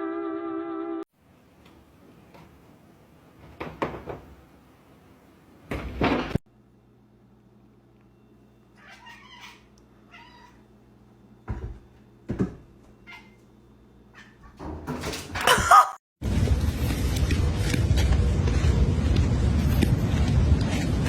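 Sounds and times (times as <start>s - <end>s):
faint steady hum: 6.5s - 14.2s
cat meowing: 8.8s - 10.6s.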